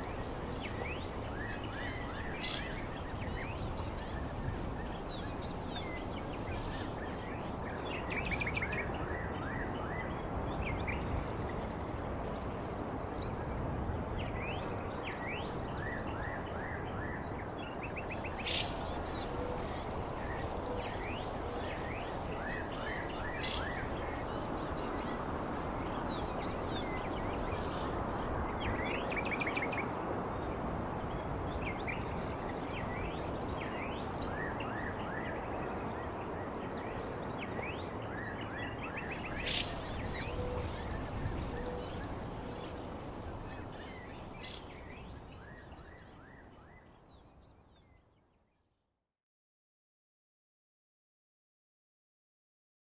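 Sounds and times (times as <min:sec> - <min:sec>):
background hiss: 0:00.0 - 0:07.8, 0:18.0 - 0:29.0, 0:39.0 - 0:46.0
birds chirping: 0:18.2 - 0:28.7, 0:39.1 - 0:44.9
high-pitched insect drone: 0:39.2 - 0:45.1.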